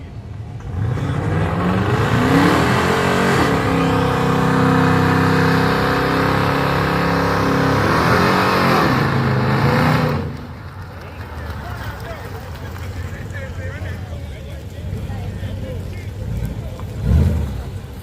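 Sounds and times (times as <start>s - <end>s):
car engine revving: 0.6s - 10.7s, 14.8s - 18.0s.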